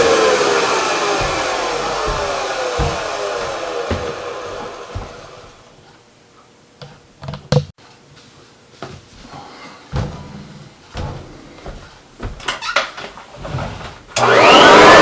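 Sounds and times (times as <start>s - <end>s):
vacuum cleaner motor winding down: 0.0s - 5.7s, 14.2s - 15.0s.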